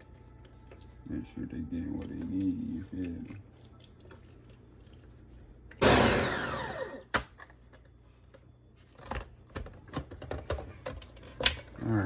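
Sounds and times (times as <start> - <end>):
electric blender motor: 5.8 - 7.1.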